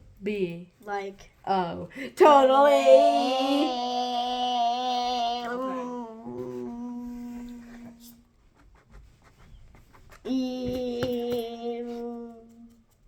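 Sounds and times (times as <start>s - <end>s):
child humming a long note: 2.8s - 8.2s, 10.3s - 12.8s.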